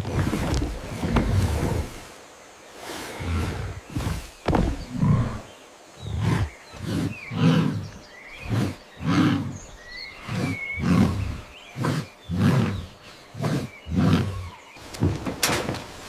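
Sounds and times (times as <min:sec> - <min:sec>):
hippo grunting: 0:03.1 - 0:15.2.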